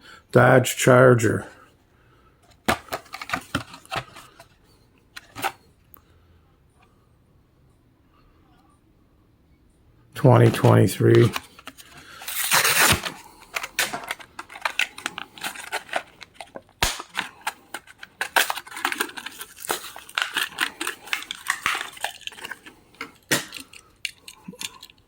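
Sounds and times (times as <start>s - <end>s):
plastic packaging crinkling: 2.8s - 4.4s, 10.4s - 25.0s.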